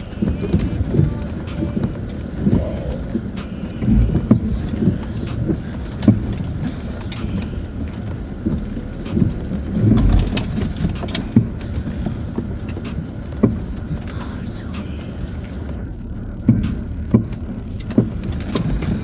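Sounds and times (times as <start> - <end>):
engine and tyres droning: 0.0 - 19.0
suspension knocks and clunks: 0.0 - 19.0.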